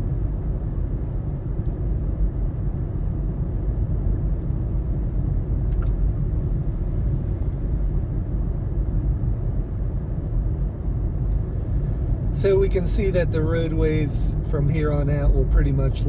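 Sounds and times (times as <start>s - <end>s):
car road and engine rumble: 0.0s - 16.0s
faint click: 5.7s - 6.0s.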